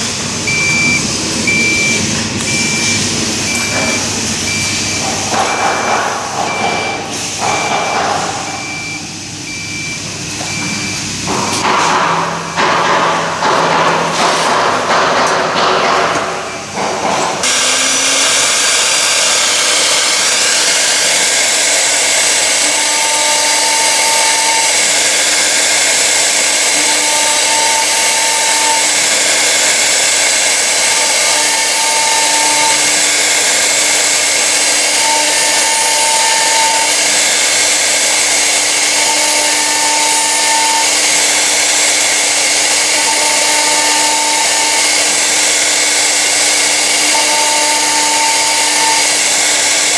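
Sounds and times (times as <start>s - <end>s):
tone beeping: 0.5s - 11.0s
router spindle running: 16.3s - 49.9s.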